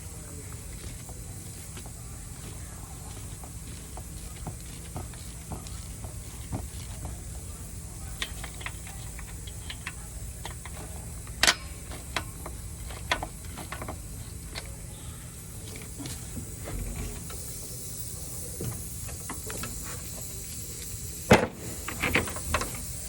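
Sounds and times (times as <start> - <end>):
metal tools clicking and knocking: 8.0 - 14.7.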